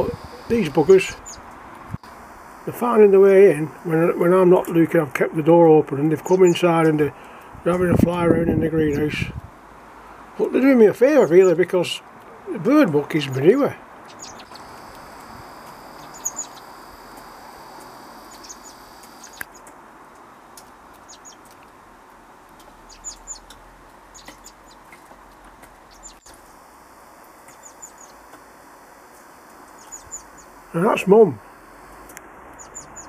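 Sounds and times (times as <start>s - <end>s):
small birds chirping: 0.0s - 4.9s, 6.1s - 7.4s, 10.5s - 11.7s, 12.6s - 19.8s, 20.9s - 21.6s, 22.6s - 33.0s
faint outdoor background: 0.0s - 33.0s.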